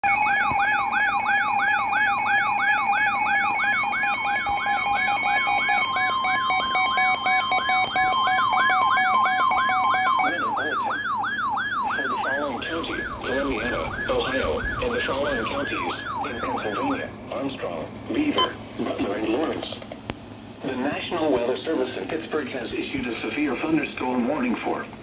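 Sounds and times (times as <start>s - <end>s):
siren sweeping down: 0.0s - 17.1s
two-tone alert beep: 18.4s - 18.6s.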